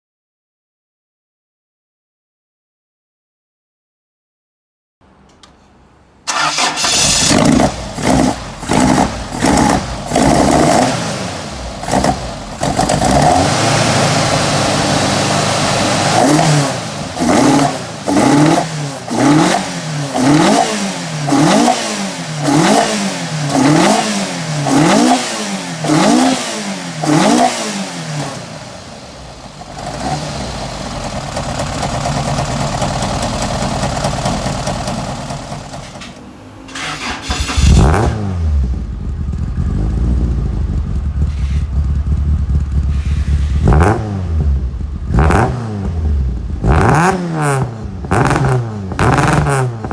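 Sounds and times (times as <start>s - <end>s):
car engine idling: 5.1s - 21.3s, 27.8s - 45.3s
car engine revving: 6.3s - 49.9s.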